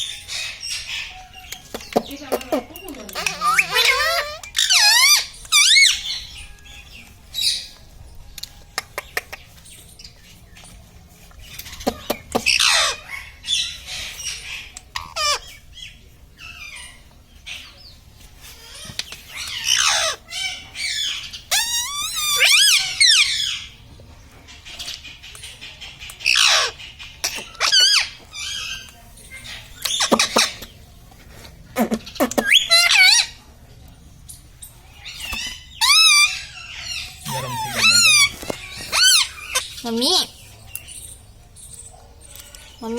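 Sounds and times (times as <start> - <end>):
parrot screeching: 3.2 - 6.2, 19.6 - 23.6, 35.8 - 39.7.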